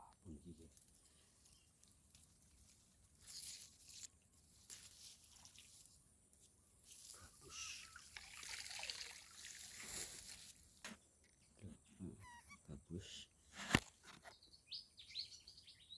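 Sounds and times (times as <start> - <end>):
water sloshing and trickling: 0.7 - 7.2, 7.8 - 10.7.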